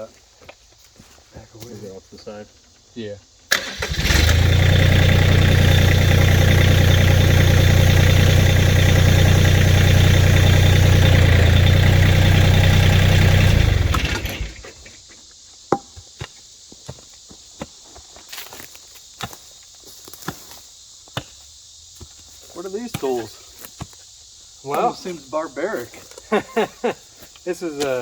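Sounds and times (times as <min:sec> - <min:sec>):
engine running steadily: 0:03.6 - 0:14.7.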